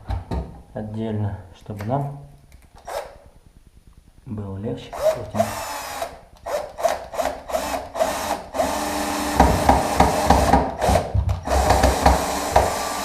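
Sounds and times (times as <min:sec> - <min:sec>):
power drill driving screw into wood: 0:02.8 - 0:03.2, 0:04.9 - 0:13.0.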